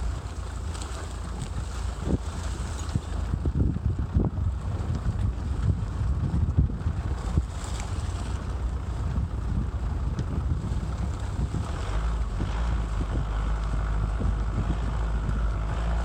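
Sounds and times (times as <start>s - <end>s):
motorcycle engine rumble: 0.0s - 16.0s
wind buffeting microphone: 0.0s - 16.0s.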